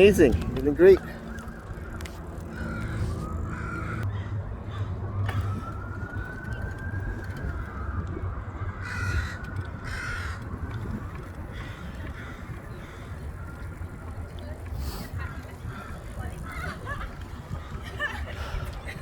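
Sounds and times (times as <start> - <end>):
steady low rumble: 0.0 - 19.0
crow cawing: 1.8 - 4.9, 8.8 - 10.5, 11.5 - 13.6.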